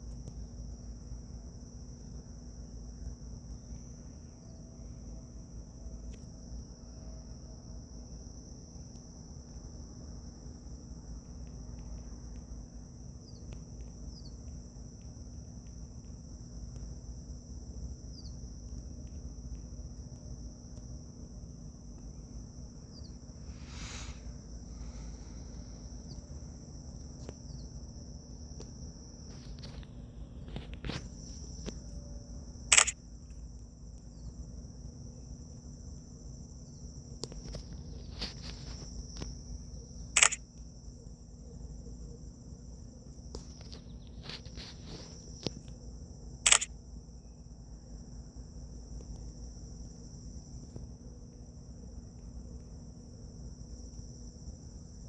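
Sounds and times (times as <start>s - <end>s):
crickets chirring: 0.0s - 55.0s
sharp clicks: 32.7s - 33.0s, 40.1s - 40.5s, 46.4s - 46.7s.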